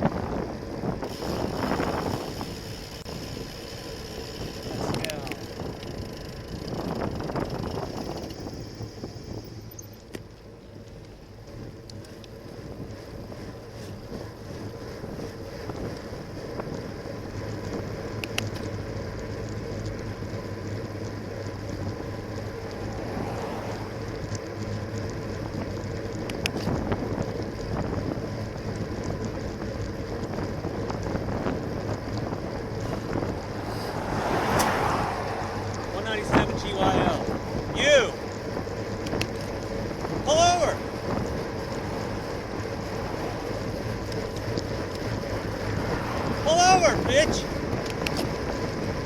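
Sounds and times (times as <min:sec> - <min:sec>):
wind on microphone: 0:00.0 - 0:03.5, 0:30.2 - 0:38.0, 0:44.8 - 0:49.0
bicycle road noise: 0:00.0 - 0:49.0
light ticks: 0:09.7 - 0:13.0, 0:18.2 - 0:22.8, 0:24.1 - 0:27.8, 0:39.0 - 0:39.7
motor vehicle passing: 0:18.9 - 0:26.0, 0:30.1 - 0:49.0.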